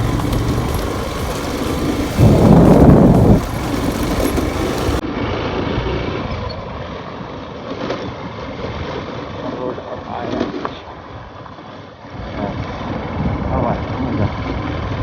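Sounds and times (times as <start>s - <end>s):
motorcycle engine running: 0.0s - 5.0s
wind on microphone: 0.0s - 5.0s.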